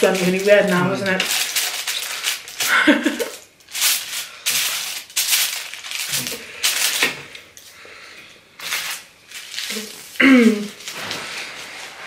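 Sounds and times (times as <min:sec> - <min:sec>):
fork scraping foil tray: 0:00.0 - 0:02.7, 0:08.6 - 0:10.1.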